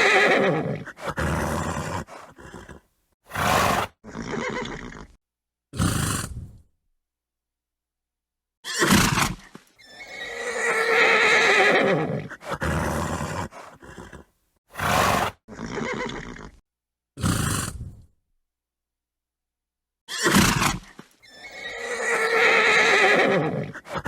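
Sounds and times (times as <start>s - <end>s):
horse snorting: 0.0s - 5.2s, 5.8s - 6.6s, 8.8s - 16.6s, 17.2s - 18.1s, 20.2s - 24.0s
horse whinnying: 0.0s - 5.2s, 8.6s - 16.6s, 20.1s - 24.0s.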